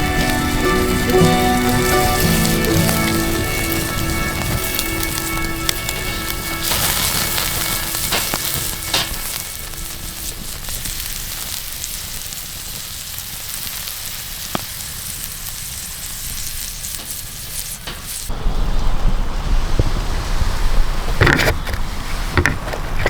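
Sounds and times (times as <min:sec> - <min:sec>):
campfire popping: 0:00.0 - 0:18.4
burger sizzling: 0:00.0 - 0:18.7.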